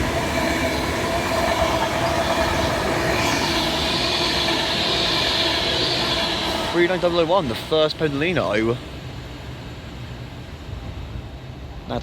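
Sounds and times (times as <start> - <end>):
hissing whine: 0.0 - 9.4
train wheels rumbling on rails: 0.0 - 12.0.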